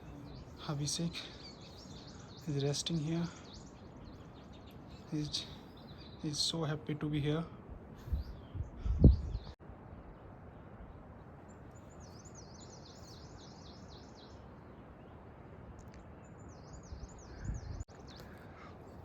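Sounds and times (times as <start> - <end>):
songbird singing: 0.0 - 19.0.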